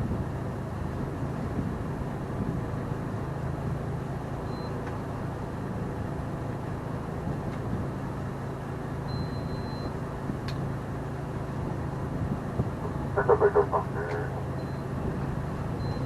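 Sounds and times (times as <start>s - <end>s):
boat engine humming: 0.0s - 16.0s
wind noise: 11.5s - 16.0s.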